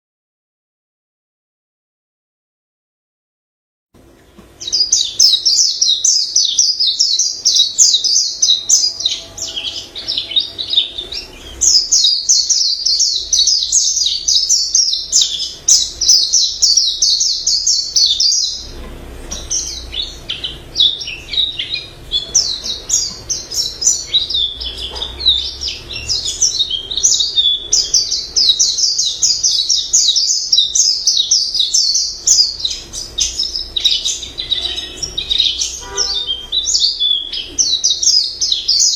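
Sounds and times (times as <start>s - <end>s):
bird warbling song: 4.6s - 38.9s.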